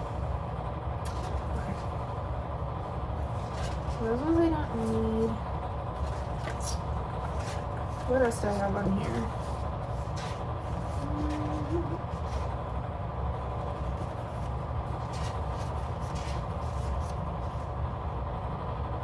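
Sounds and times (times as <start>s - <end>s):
low background rumble: 0.0s - 19.0s
paper sheets rustling and clicking: 1.0s - 2.0s, 3.2s - 12.8s, 13.4s - 17.8s.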